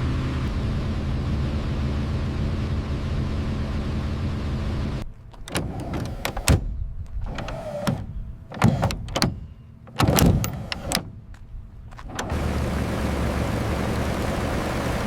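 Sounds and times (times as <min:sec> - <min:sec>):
mechanical clunks and clicks: 0:05.3 - 0:12.4
electric motor whirring: 0:05.4 - 0:11.2.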